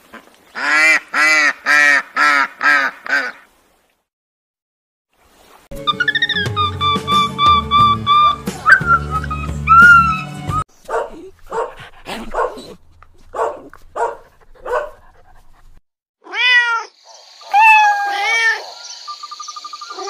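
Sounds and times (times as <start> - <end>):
kitten meowing: 16.2 - 16.9.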